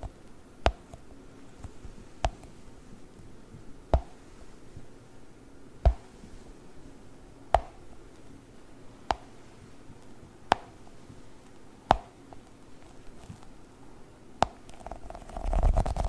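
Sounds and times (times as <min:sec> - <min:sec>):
sticky pops of gel balls: 0:00.0 - 0:02.6, 0:03.2 - 0:04.9, 0:05.8 - 0:06.4, 0:07.4 - 0:08.4, 0:09.0 - 0:13.7, 0:14.4 - 0:15.0.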